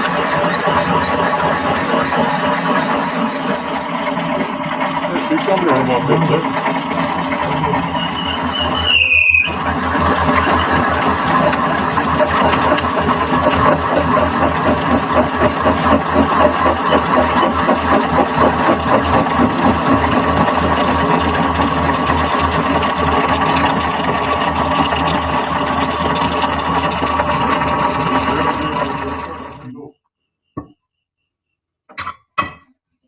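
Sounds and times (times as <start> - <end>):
metal lathe running: 0.0 - 29.7.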